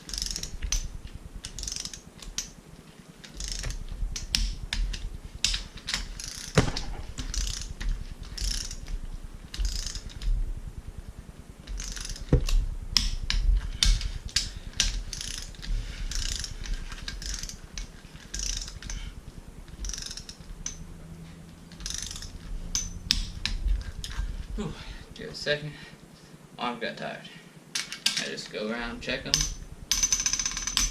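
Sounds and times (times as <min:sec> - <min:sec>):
ratchet wrench clicking: 0:00.0 - 0:02.6, 0:03.2 - 0:10.4, 0:11.6 - 0:24.5, 0:29.1 - 0:30.9.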